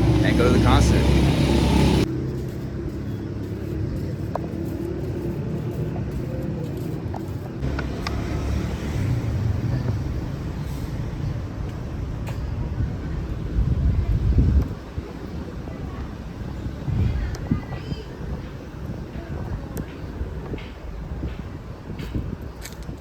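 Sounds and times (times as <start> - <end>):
vehicle rumbling: 0.0 - 23.0.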